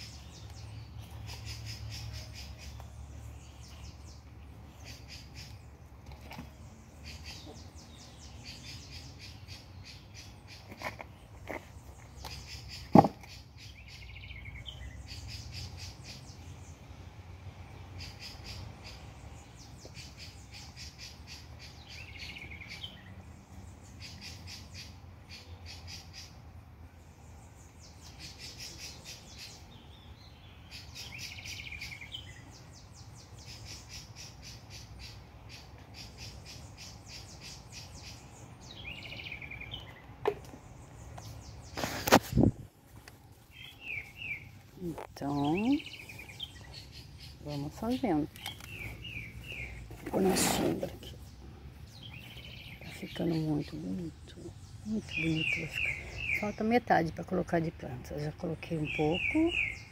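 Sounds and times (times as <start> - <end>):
bird chirping call: 18.0 - 23.2, 27.2 - 42.5, 43.5 - 56.9, 57.8 - 59.9
birds trilling: 27.2 - 56.9, 58.1 - 59.9.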